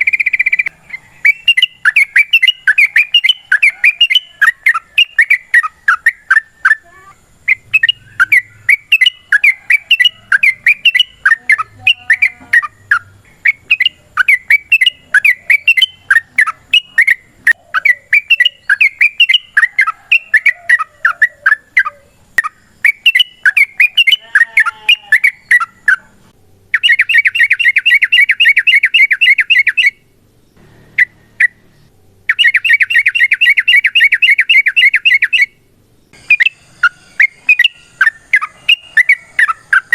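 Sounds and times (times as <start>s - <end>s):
bird rattling trills: 0.0s - 6.8s, 36.2s - 39.9s
bird chirping phrases: 0.0s - 39.9s.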